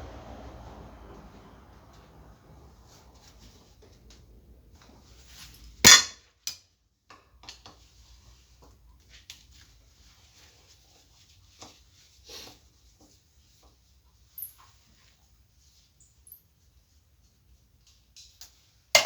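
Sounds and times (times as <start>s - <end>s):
loud metal clank: 5.8s - 6.2s.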